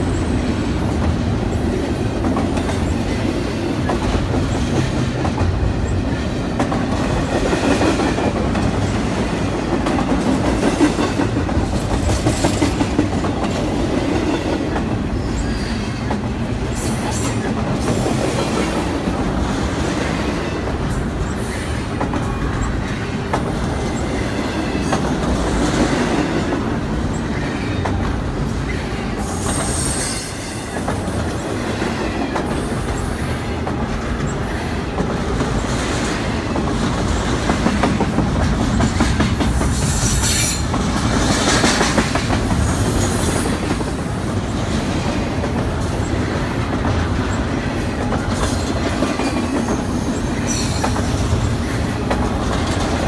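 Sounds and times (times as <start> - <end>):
steel wheels rumbling on rail: 0.0 - 53.0
high wheel squeal: 28.6 - 31.2, 42.8 - 45.0.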